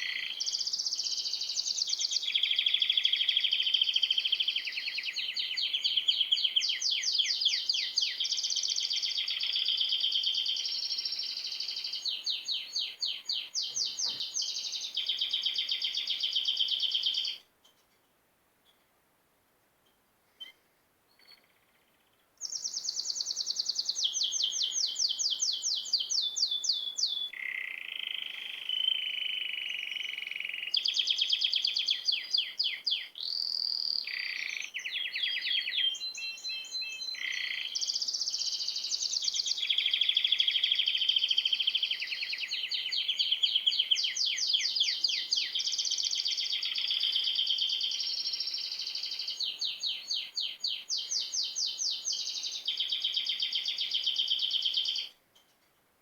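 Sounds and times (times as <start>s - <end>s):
songbird singing trills: 0.0s - 17.4s, 20.4s - 55.2s.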